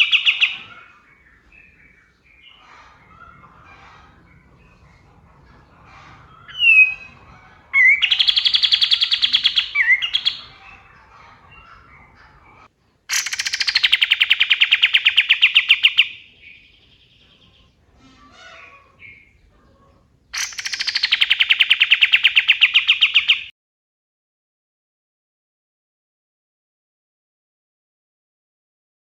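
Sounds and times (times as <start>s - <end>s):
bird rattling trills: 6.1s - 10.8s, 13.1s - 16.2s, 20.4s - 22.5s.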